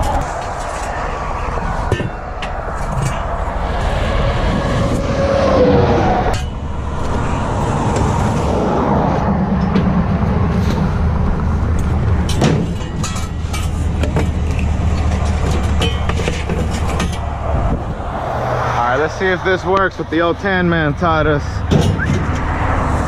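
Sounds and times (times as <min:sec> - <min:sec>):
vehicle engine rumbling: 0:00.0 - 0:23.0
sharp knocks and clanks: 0:01.8 - 0:03.4, 0:09.5 - 0:10.8, 0:11.8 - 0:17.8, 0:21.6 - 0:22.5.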